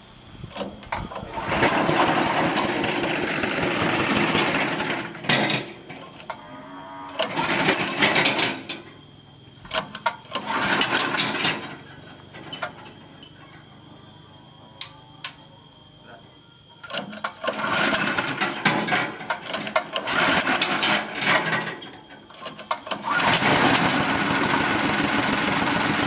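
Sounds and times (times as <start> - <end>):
machine high whine: 0.0 - 26.0.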